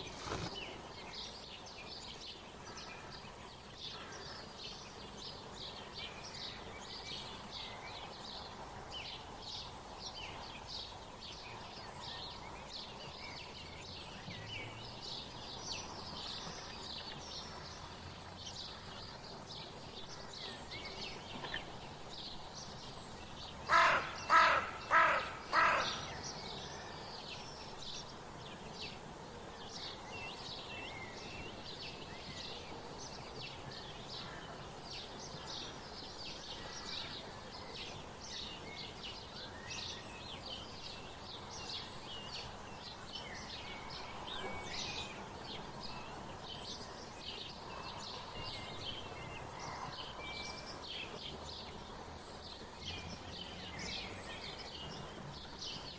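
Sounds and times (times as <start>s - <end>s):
small birds chirping: 0.0s - 55.9s
large bird harsh calls: 23.7s - 26.2s.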